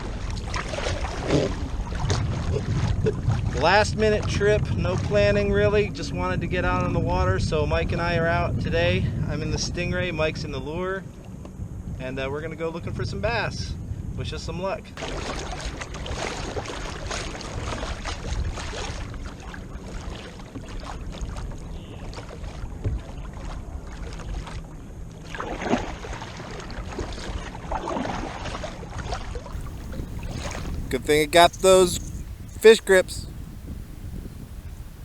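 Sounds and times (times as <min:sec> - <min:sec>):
water splashing around kayak: 0:00.0 - 0:03.6, 0:15.0 - 0:30.9
wind noise on microphone: 0:01.0 - 0:03.6, 0:29.6 - 0:35.0.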